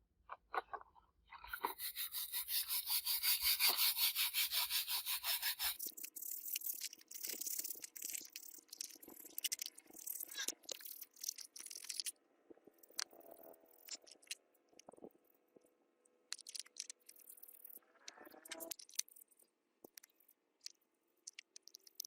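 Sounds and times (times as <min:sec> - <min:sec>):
irregular scraping strokes: 0:01.4 - 0:07.4
rapid rubbing strokes: 0:01.5 - 0:06.6.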